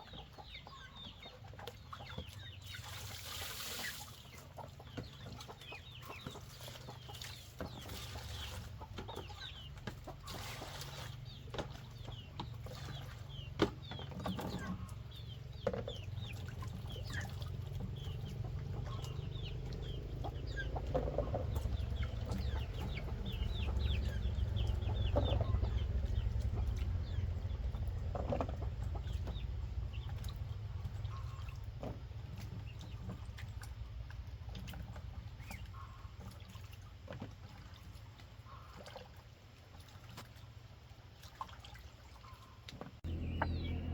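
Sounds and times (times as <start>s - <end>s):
chickens clucking: 0.0s - 31.4s, 42.2s - 43.9s
chicks peeping: 3.8s - 29.4s, 43.0s - 43.9s
low rumble: 17.6s - 31.6s, 43.0s - 43.9s.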